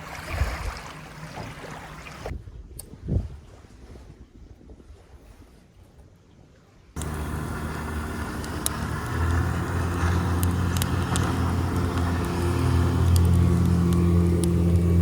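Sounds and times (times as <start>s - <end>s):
motor engine running: 7.0s - 15.0s.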